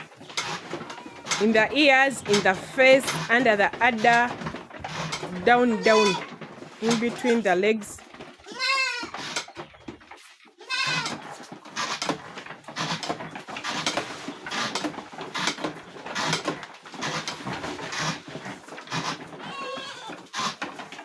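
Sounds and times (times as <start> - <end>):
young goats bleating: 5.6 - 6.3, 8.4 - 9.1, 10.6 - 11.2, 19.4 - 20.1.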